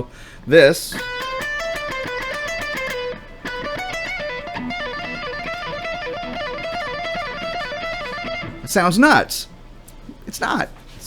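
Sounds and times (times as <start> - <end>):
guitar playing fast scale: 0.9 - 9.3.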